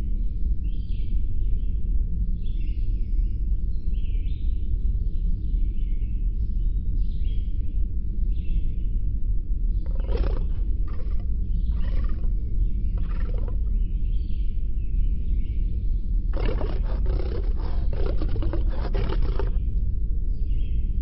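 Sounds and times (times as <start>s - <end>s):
steady low rumble: 6.7s - 21.0s
rasping roars: 9.9s - 12.4s, 13.0s - 13.7s, 16.3s - 19.6s.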